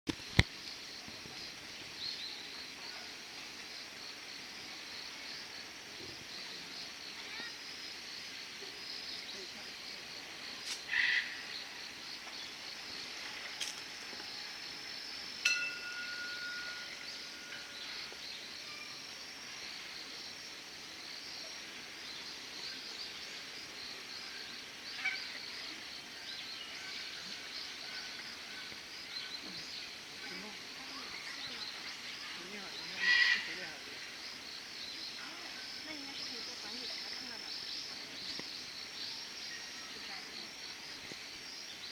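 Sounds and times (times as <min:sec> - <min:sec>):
insects chirring: 0:00.1 - 0:41.9
clear ringing tone: 0:15.5 - 0:18.8.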